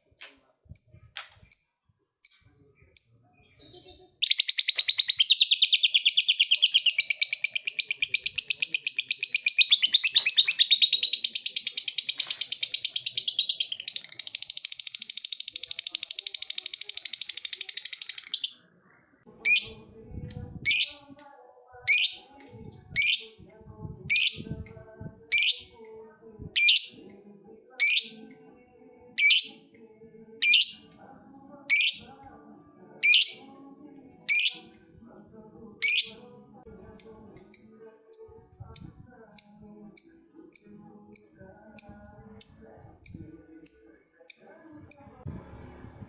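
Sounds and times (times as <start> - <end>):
shrill bird chirps: 0.8 - 18.6.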